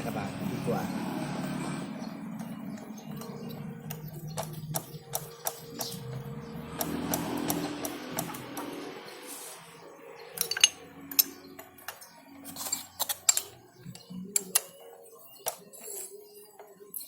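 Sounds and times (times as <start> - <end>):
metallic clicks of hand tools: 10.4 - 14.7.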